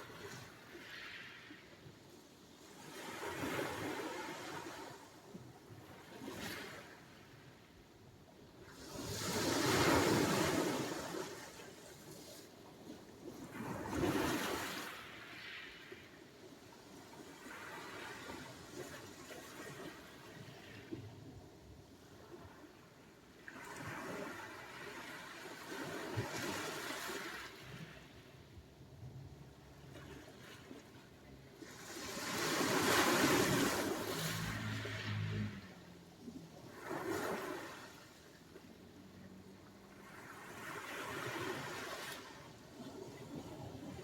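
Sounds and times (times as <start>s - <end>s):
sea waves washing onto shore: 31.6s - 35.7s.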